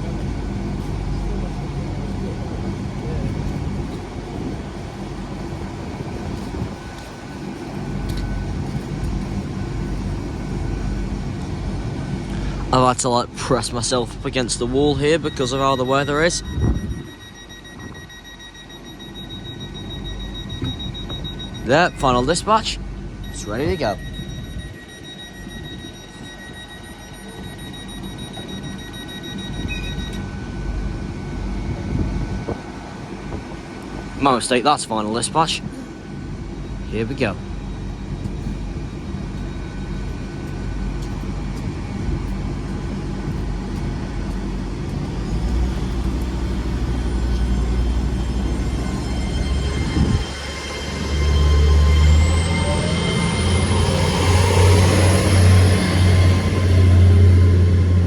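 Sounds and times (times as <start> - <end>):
high steady whine: 0.0 - 58.0
train diesel engines idling: 0.0 - 58.0
wind noise: 2.1 - 12.7, 16.3 - 18.2, 29.6 - 34.2, 38.0 - 52.5
low rumble: 19.1 - 58.0.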